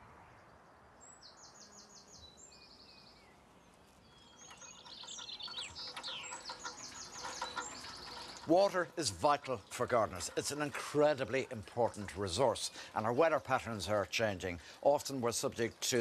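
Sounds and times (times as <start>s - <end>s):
birds singing high trills: 1.0s - 8.4s.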